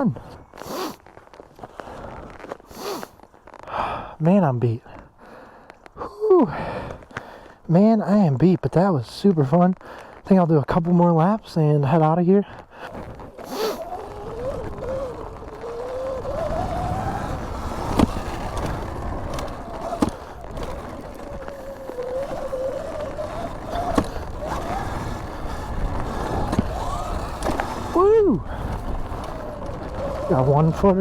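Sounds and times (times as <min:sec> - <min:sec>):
rumble of wind and tyres: 0:00.0 - 0:31.0
electric motor whine: 0:12.9 - 0:31.0.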